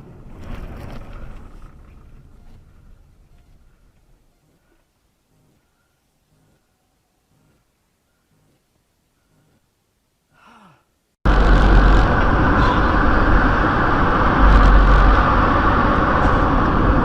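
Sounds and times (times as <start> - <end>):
car driving heard from inside: 11.3 - 17.0.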